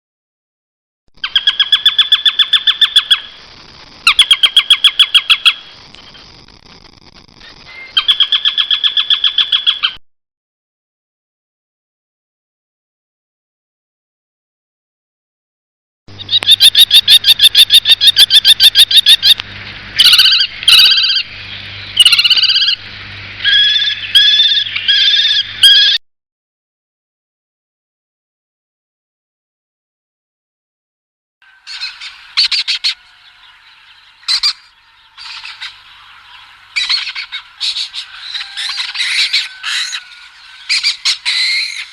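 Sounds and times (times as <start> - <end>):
bird calling repeated notes: 1.2 - 3.4, 16.1 - 19.4, 20.0 - 22.8, 23.4 - 26.0, 31.4 - 41.9.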